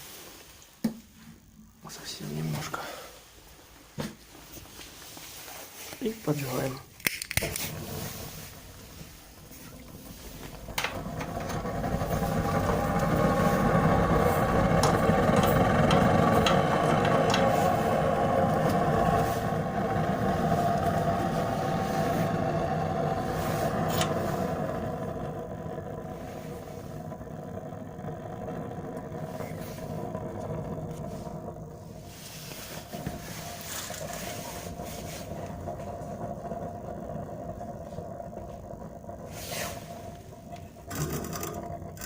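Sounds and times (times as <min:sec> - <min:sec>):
furnace flame rushing: 0:00.0 - 0:42.0
sharp cracks: 0:06.9 - 0:07.8.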